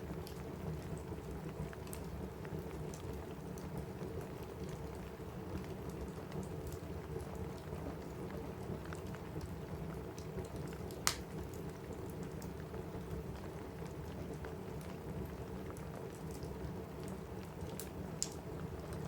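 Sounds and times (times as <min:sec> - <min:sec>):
rain on a roof: 0:00.0 - 0:19.0
wood fire crackling: 0:00.0 - 0:19.0
fire pops: 0:10.9 - 0:11.3.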